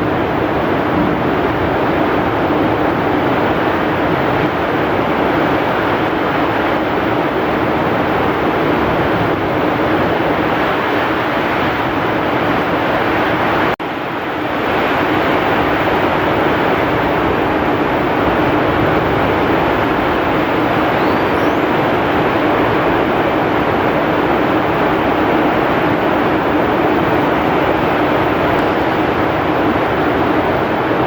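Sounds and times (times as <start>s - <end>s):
strong wind: 0.0s - 31.0s
heavy rain pouring: 0.3s - 31.0s.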